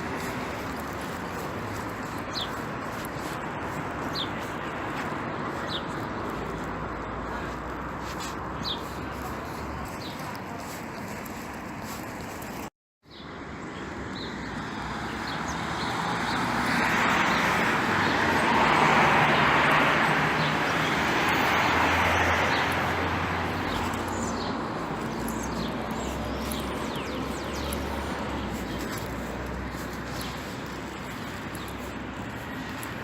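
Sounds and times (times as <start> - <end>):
vehicle passing on wet road: 14.7 - 33.0.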